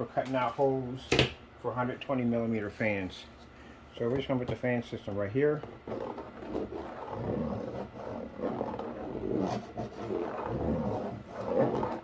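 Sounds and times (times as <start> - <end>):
knife sawing through cardboard: 5.7 - 12.0.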